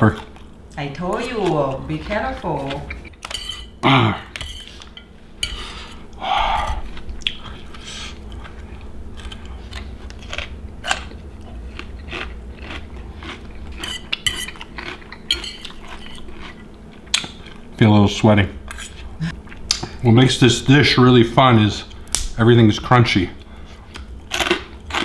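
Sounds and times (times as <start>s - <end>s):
utensils scraping plates: 1.3s - 6.1s, 13.7s - 16.7s
crunchy chewing: 1.3s - 17.8s, 23.4s - 25.0s.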